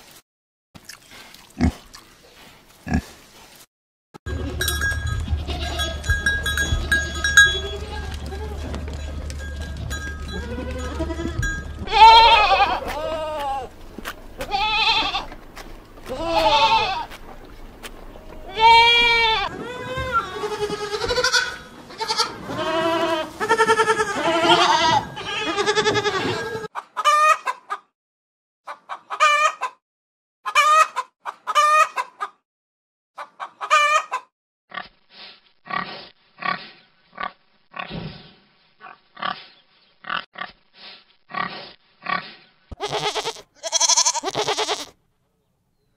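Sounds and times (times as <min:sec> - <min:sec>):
goats bleating: 0:05.2 - 0:09.0, 0:09.8 - 0:13.7, 0:14.4 - 0:15.4, 0:16.0 - 0:17.2, 0:18.2 - 0:26.7, 0:42.7 - 0:45.0
piglets grunting and squealing: 0:41.3 - 0:44.9.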